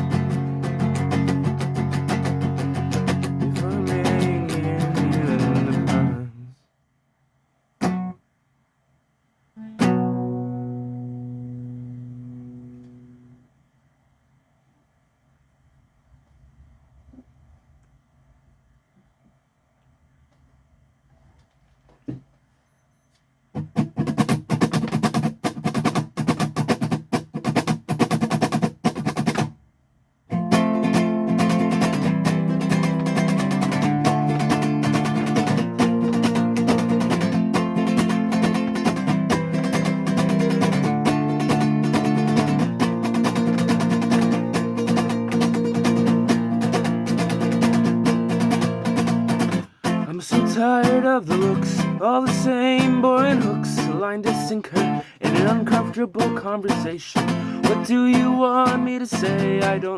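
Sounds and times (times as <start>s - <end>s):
guitar strumming: 0.0s - 6.4s, 7.8s - 8.2s, 9.6s - 13.4s, 23.6s - 29.6s, 30.3s - 59.9s.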